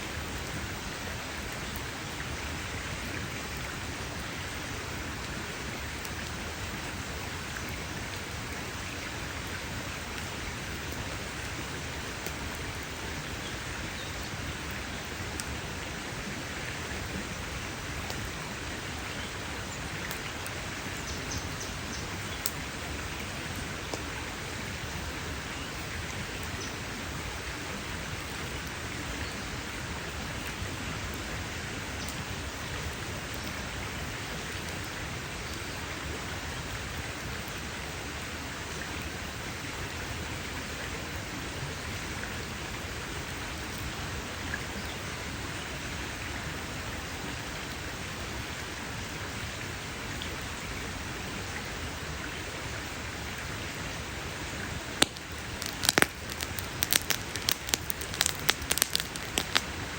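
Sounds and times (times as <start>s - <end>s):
campfire burning with hiss: 0.0s - 59.9s
wood crackling and popping: 54.9s - 59.9s.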